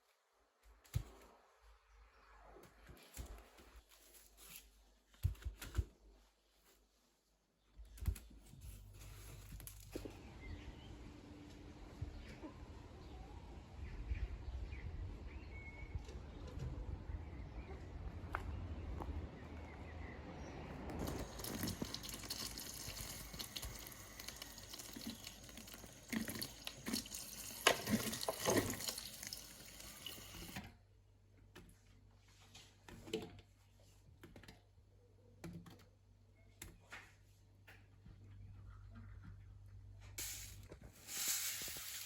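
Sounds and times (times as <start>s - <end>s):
water running from a tap: 21.0s - 30.6s.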